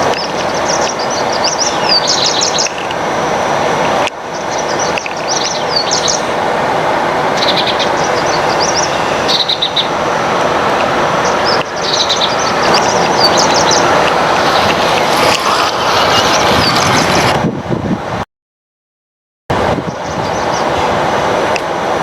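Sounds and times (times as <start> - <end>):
birds chirping: 0.0 - 3.0, 4.2 - 6.4, 7.3 - 16.8, 19.8 - 20.9
steady rushing noise: 0.0 - 18.2, 19.5 - 22.0.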